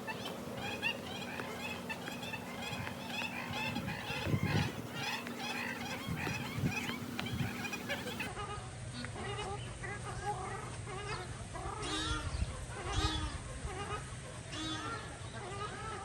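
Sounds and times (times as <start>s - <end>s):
water birds calling: 0.0s - 8.4s.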